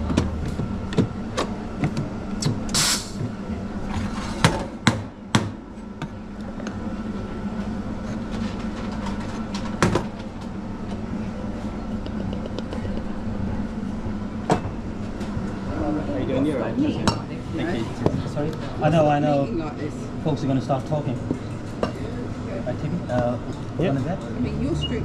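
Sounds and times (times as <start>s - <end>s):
low machine hum: 0.0s - 25.0s
brief hiss: 2.8s - 3.2s.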